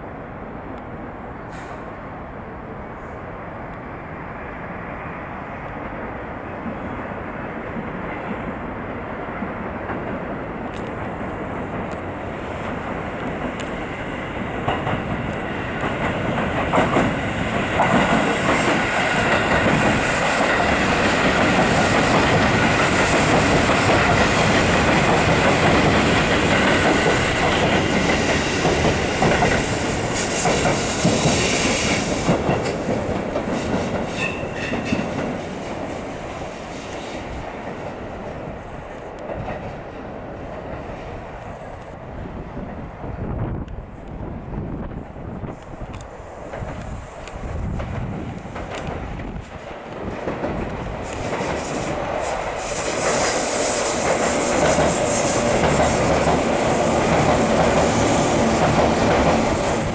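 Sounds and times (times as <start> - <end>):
electric train wheels clicking: 10.0 - 37.8, 45.4 - 59.9.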